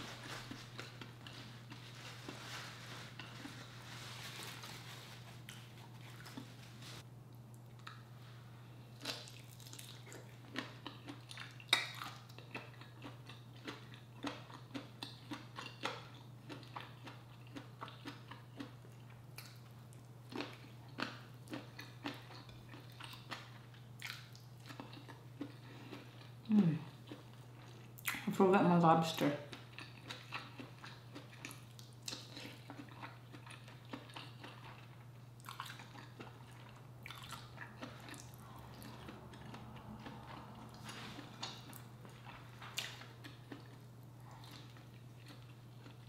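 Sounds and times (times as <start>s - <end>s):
person chewing with wet clicks: 7.3s - 8.1s, 8.9s - 28.3s, 29.4s - 46.0s
steady low hum: 32.6s - 46.0s.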